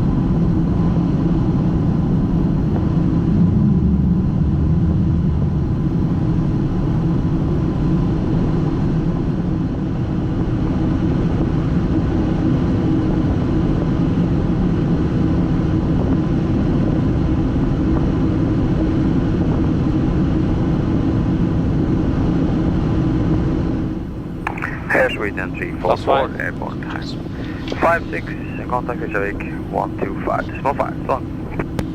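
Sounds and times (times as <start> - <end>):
aircraft engine and airflow noise: 23.9 - 31.9.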